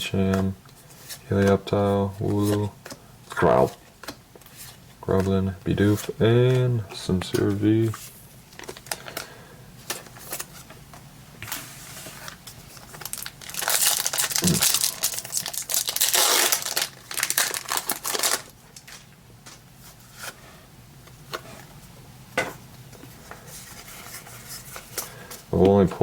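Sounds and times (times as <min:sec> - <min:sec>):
foil wrapper crinkling and tearing: 0:12.4 - 0:19.1.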